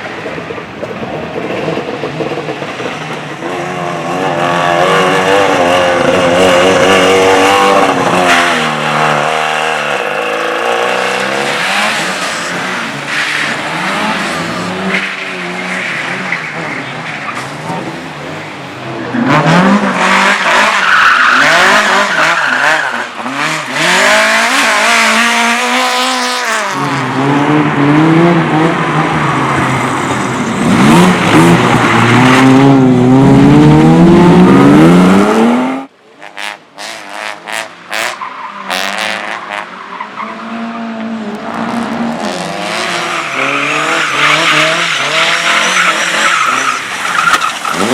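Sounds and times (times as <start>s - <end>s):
race car engines revving: 0.0s - 47.9s
tyres squealing and skidding: 5.0s - 27.2s, 41.6s - 47.9s.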